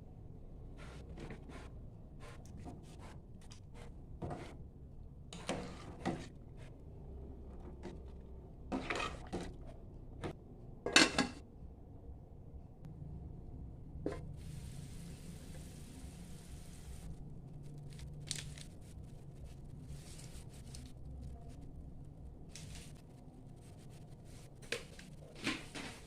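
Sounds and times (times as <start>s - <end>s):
cookware clattering scrapes: 8.7s - 9.6s.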